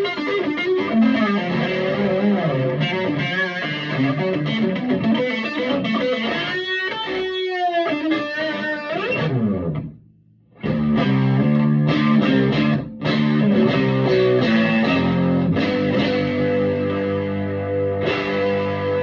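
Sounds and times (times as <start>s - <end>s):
electric guitar playing: 0.0s - 19.0s.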